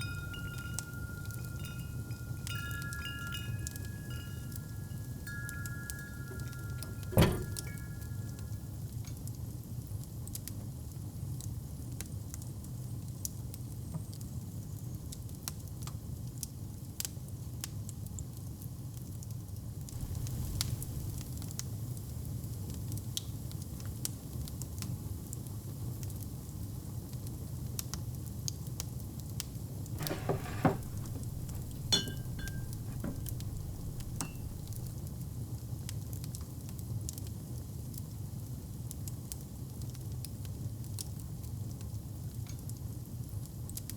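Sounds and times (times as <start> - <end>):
fire crackling and popping: 20.0 - 21.6
wood fire burning: 20.0 - 21.6, 30.0 - 35.1.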